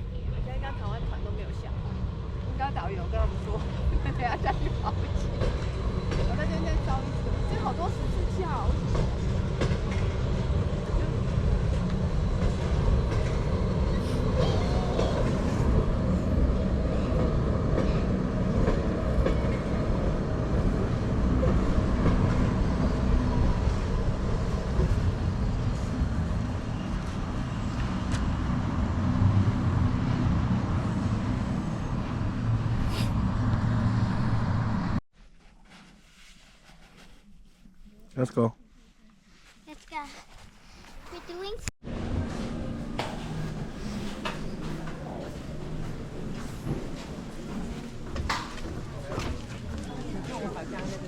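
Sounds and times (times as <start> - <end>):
train rumbling: 0.0 - 35.5, 41.0 - 51.0
rail clatter: 0.3 - 32.4, 42.3 - 51.0.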